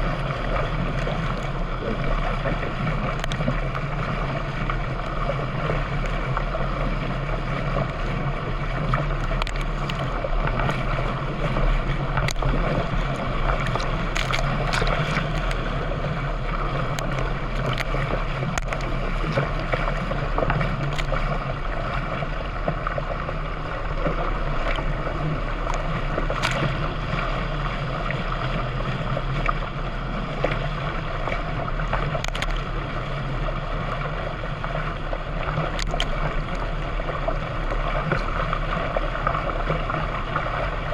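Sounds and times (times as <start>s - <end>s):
water and wind rushing: 0.0s - 40.9s
sharp splashes or knocks: 12.2s - 15.6s.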